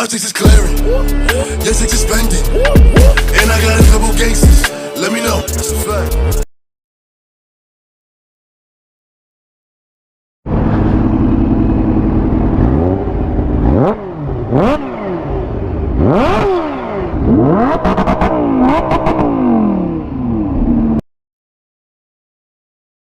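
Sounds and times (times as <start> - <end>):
motorcycle engine revving: 10.5 - 21.0.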